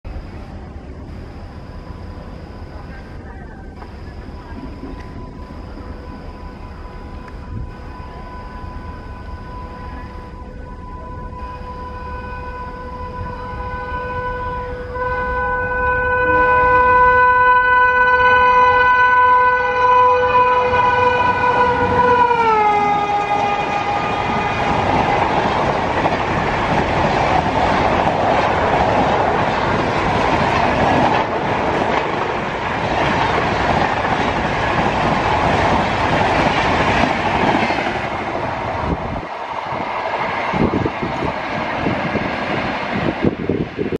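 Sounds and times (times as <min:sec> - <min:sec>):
train horn: 0:04.4 - 0:26.1
train coaches rushing rumble: 0:12.0 - 0:43.9
train wheel clatter: 0:20.8 - 0:43.9.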